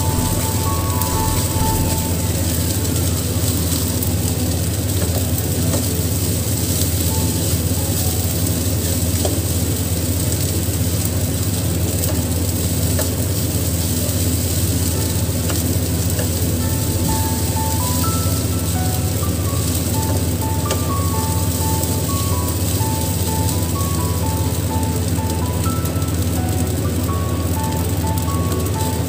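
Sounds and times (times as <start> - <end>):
steady low hum: 0.0 - 3.7, 14.9 - 24.1
rice sizzling in a pan: 0.0 - 29.0.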